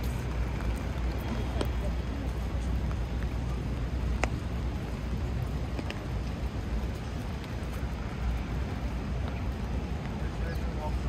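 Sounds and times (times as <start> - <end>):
low traffic rumble: 0.0 - 11.0
raindrops ticking close by: 0.0 - 11.0
steady rain on street: 0.0 - 11.0.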